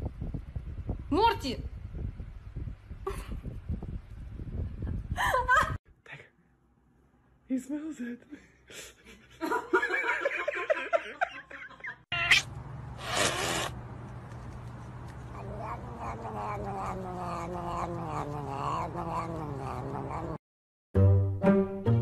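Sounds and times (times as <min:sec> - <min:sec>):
cat mewing: 0:12.1 - 0:13.7, 0:15.2 - 0:20.4
cat hissing: 0:12.3 - 0:13.8, 0:15.2 - 0:20.4
cat yowling: 0:15.3 - 0:20.4.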